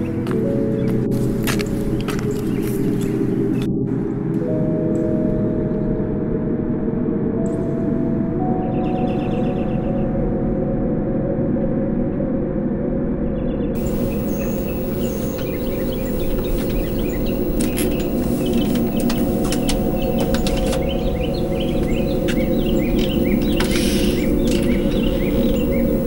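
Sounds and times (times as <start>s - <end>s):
steady low rumble: 0.1s - 26.0s
small birds chirping: 13.4s - 26.0s
scattered clicks: 13.8s - 26.0s.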